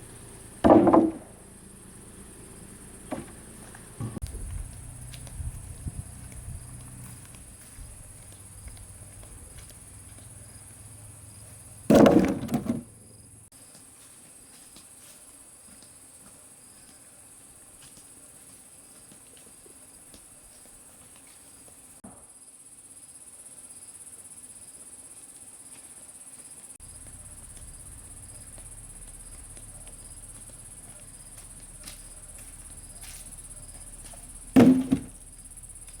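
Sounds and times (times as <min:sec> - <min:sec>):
crickets chirring: 0:00.0 - 0:36.0
short loud thumps: 0:00.6 - 0:01.4, 0:04.0 - 0:04.4, 0:11.9 - 0:13.0, 0:34.0 - 0:35.4.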